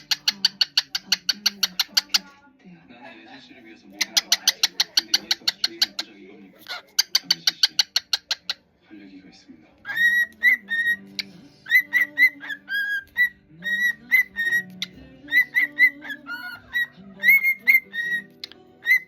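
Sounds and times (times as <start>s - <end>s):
cockatiel whistling: 9.8s - 19.0s.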